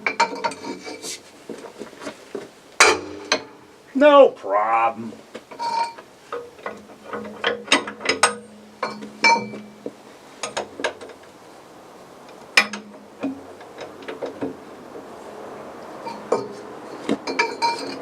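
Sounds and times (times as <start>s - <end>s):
steel tools and bolts clinking: 0.0s - 1.1s, 5.5s - 9.8s, 16.0s - 18.0s.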